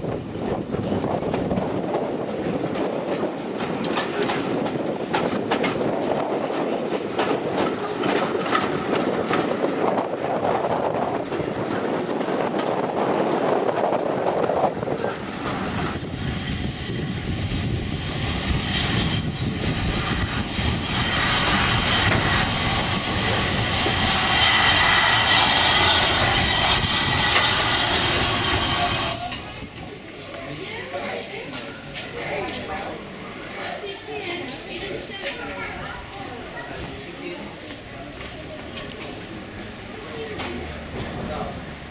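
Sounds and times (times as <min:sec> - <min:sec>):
steam train running: 0:00.0 - 0:41.9
wheels clicking over rail joints: 0:00.3 - 0:24.8, 0:31.4 - 0:41.9
hissing with faint squeal: 0:20.9 - 0:29.7.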